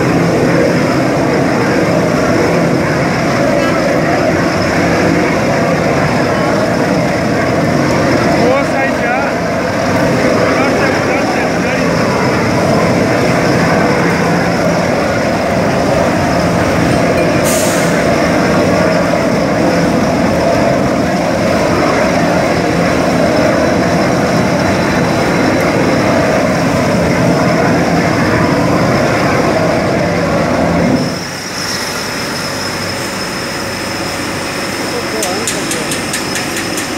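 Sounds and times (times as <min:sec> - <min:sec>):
furnace heater roaring: 0:00.0 - 0:36.9.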